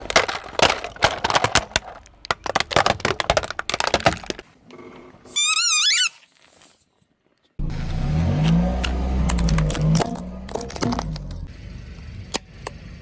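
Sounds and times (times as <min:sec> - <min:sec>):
objects cracking under a tyre: 0:00.0 - 0:04.7, 0:08.4 - 0:11.5.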